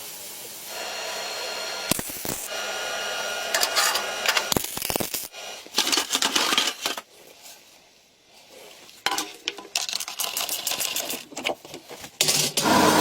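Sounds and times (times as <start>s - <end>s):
metal tools clinking and rattling: 3.6s - 4.5s, 5.8s - 7.1s, 9.0s - 12.6s.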